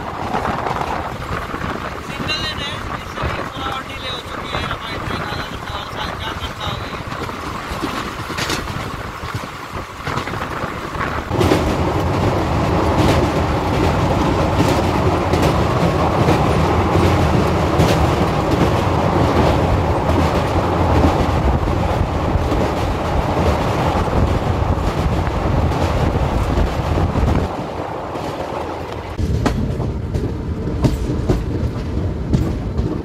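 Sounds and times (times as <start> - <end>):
rail joint clacks: 0.0 - 33.0
train wheels rumbling on track: 0.0 - 33.0.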